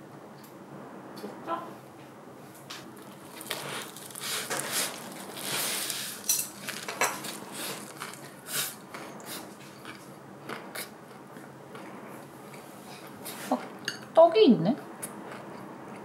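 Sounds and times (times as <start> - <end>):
crisp chewing and crunching: 2.9 - 13.8.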